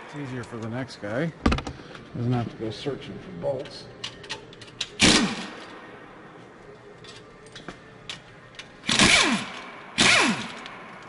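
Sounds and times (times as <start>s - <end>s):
metal clicks of sockets and bolts: 3.6s - 5.0s, 7.0s - 8.9s
air wrench whirring with falling whine: 8.8s - 10.8s.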